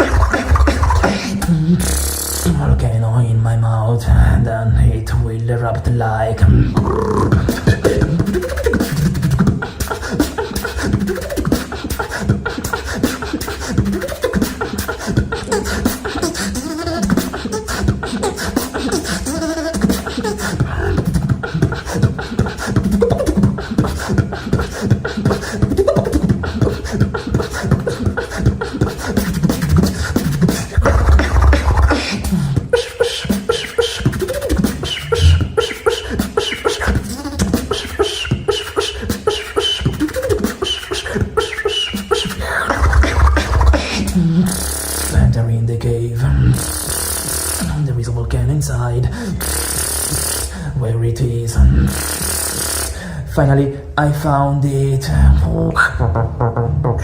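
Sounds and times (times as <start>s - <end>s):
person beatboxing: 0.0s - 57.0s.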